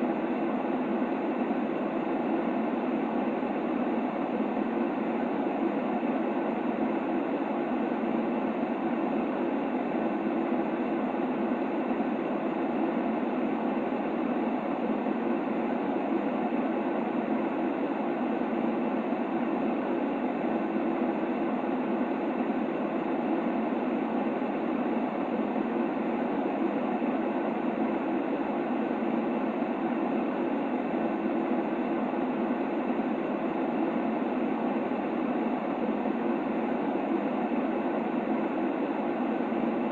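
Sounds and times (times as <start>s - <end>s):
steady white noise: 0.0s - 39.9s.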